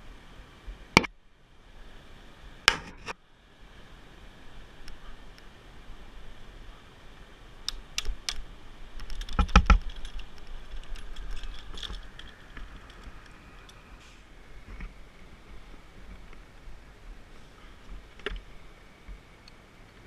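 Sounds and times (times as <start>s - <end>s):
sharp clicks: 7.6s - 8.4s.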